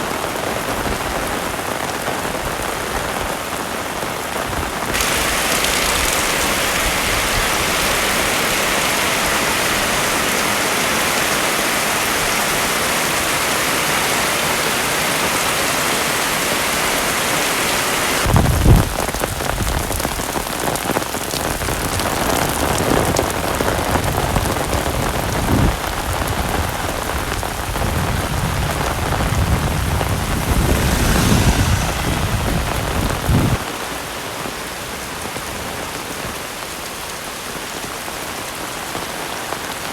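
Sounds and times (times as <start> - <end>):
heavy rain pouring: 0.0 - 39.9
low rumbles: 28.8 - 33.6.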